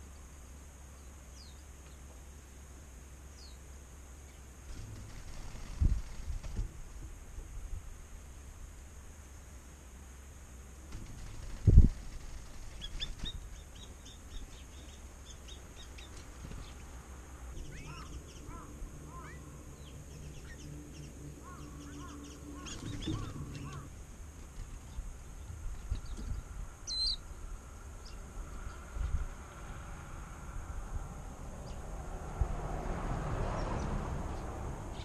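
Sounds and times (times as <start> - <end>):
faint low hum: 0.0 - 35.0
wild birds calling: 10.9 - 24.0, 24.6 - 28.9.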